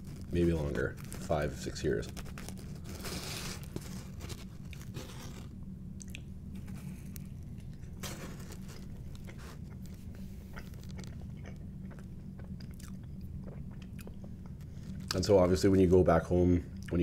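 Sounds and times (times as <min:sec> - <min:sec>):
chewing pizza crust: 0:00.0 - 0:15.4
steady low hum: 0:00.0 - 0:17.0.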